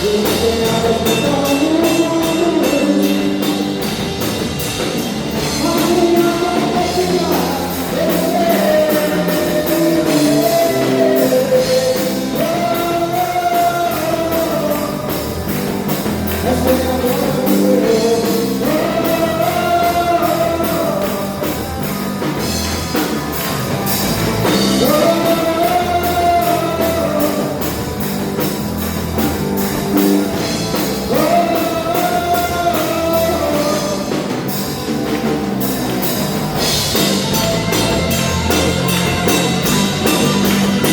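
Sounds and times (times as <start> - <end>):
band accompaniment: 0.0 - 40.9
person singing worship song: 5.4 - 22.4, 24.4 - 27.9, 30.8 - 34.4.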